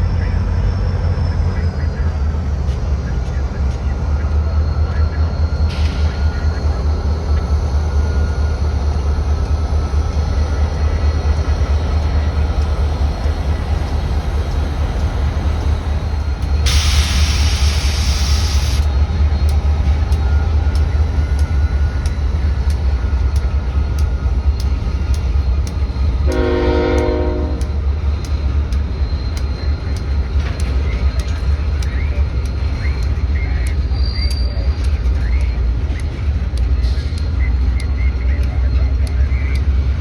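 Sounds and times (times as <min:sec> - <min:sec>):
train rumbling past: 0:00.0 - 0:40.0
burst of hiss: 0:16.7 - 0:18.9
wheels clicking over rail joints: 0:18.7 - 0:39.7
train horn blast: 0:26.3 - 0:27.8.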